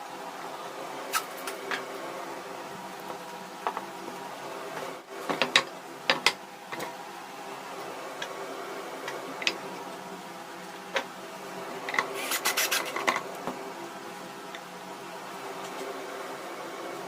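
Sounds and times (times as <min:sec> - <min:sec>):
steady hum: 0:00.0 - 0:17.0
hand scraping a workpiece: 0:12.0 - 0:13.2.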